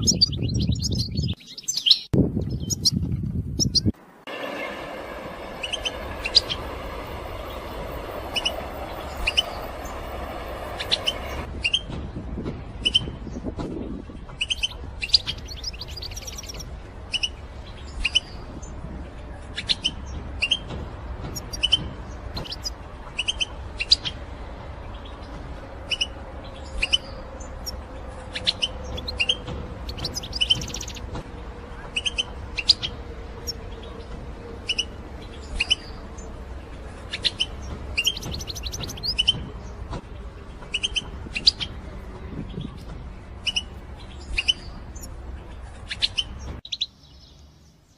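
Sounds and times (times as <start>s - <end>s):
finch contact calls: 25.9s - 31.1s, 37.0s - 39.4s.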